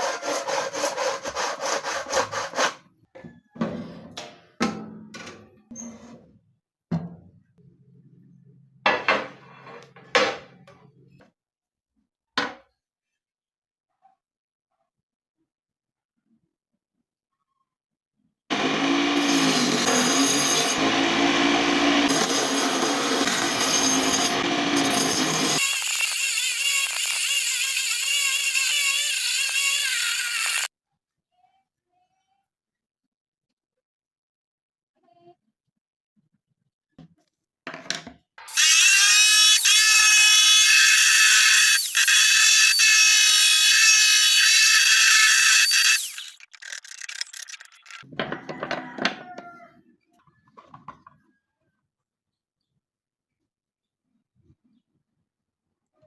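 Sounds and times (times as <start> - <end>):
power tool grinding plastic: 18.5 - 30.7, 38.5 - 48.1
hard objects clattering: 45.6 - 48.1.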